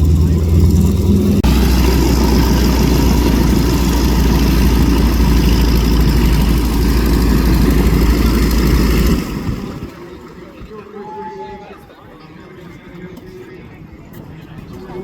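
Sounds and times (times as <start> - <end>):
propeller aircraft flyby drone: 0.0 - 10.3.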